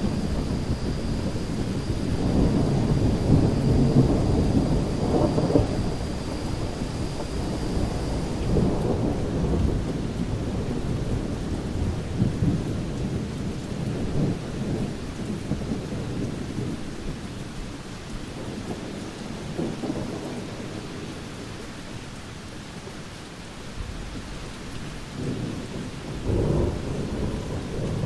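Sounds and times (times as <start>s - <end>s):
thunder rumbling: 0.0s - 16.8s, 25.1s - 28.0s
steady rain: 0.0s - 28.0s.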